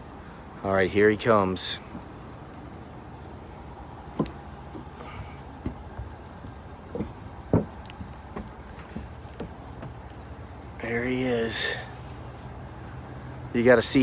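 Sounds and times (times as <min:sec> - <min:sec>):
steady low hum: 0:00.0 - 0:14.0
car clunking down ramps: 0:03.2 - 0:11.9.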